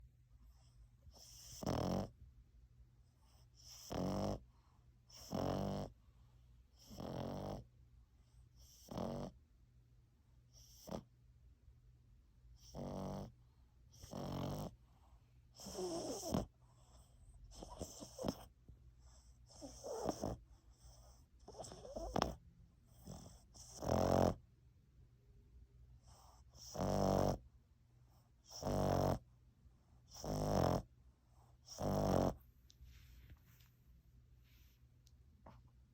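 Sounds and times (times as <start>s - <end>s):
puppy snoring: 0.5s - 2.3s, 3.1s - 6.1s, 6.7s - 9.4s, 10.5s - 11.2s, 12.5s - 24.5s, 26.0s - 32.5s.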